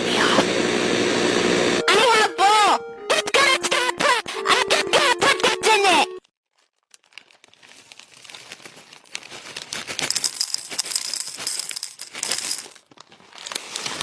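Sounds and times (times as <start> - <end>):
small hard pieces rattling in container: 6.6 - 14.0.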